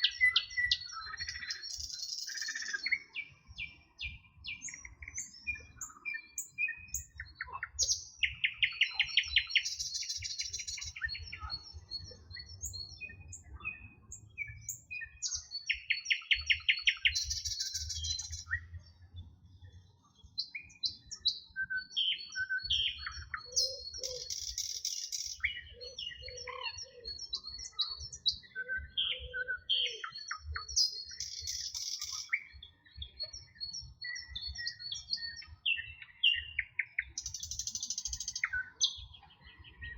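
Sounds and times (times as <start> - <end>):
songbirds chirping and whistling: 0.0 - 39.9.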